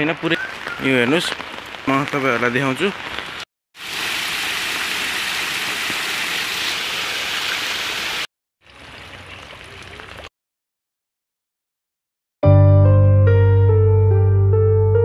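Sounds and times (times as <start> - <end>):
heavy rain pouring: 0.0 - 8.3.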